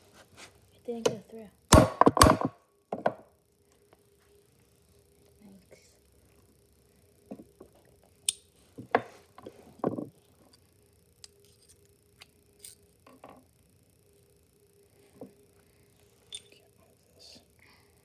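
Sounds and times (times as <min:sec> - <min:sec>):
hammer striking punch tool: 0:01.7 - 0:02.6.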